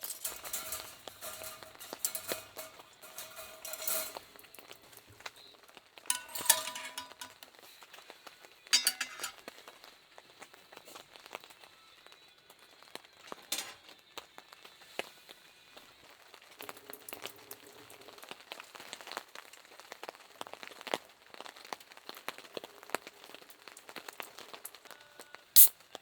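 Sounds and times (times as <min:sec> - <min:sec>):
metal dishes clinking: 0:00.0 - 0:04.7, 0:06.1 - 0:07.4, 0:08.8 - 0:09.4, 0:13.3 - 0:13.9.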